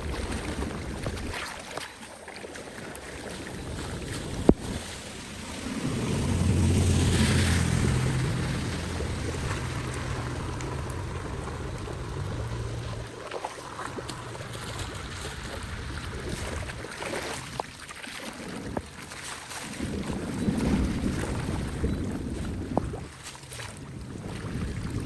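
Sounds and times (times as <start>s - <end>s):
wind buffeting microphone: 0.0s - 1.6s, 3.1s - 25.0s
floodwater rushing: 0.0s - 25.0s
low rumble: 3.7s - 17.0s.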